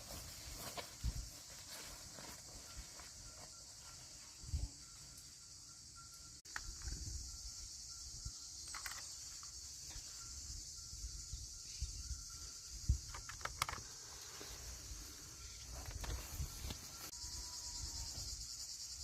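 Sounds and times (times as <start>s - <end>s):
insects chirring: 0.0s - 19.0s
handling clicks and knocks: 13.0s - 14.0s.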